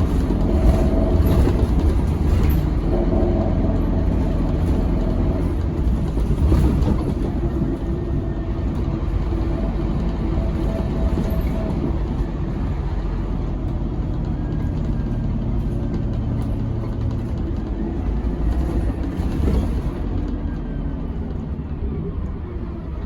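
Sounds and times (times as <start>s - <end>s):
bus engine drone: 0.0s - 23.0s.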